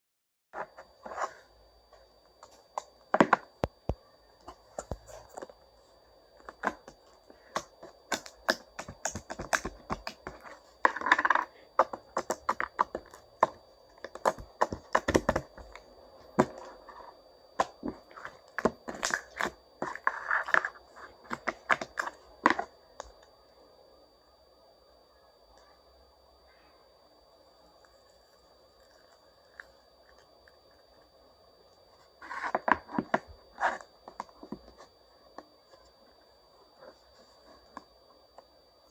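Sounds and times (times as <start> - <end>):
slime kneaded by hand: 6.5 - 22.7.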